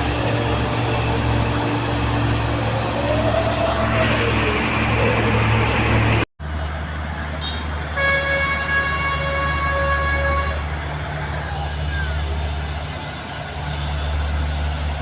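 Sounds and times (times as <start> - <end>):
heavy vehicle engine running: 0.0 - 15.0
vehicle horn blast: 7.4 - 10.6.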